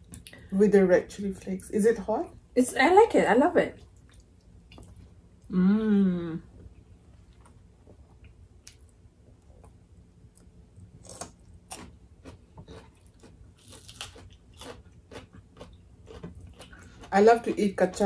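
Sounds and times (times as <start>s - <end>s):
people chewing food: 7.2s - 18.0s.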